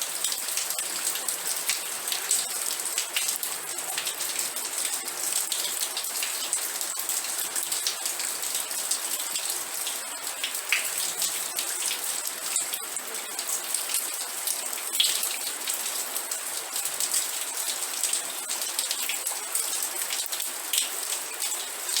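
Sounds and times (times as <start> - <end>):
rain falling on a surface: 0.0 - 22.0.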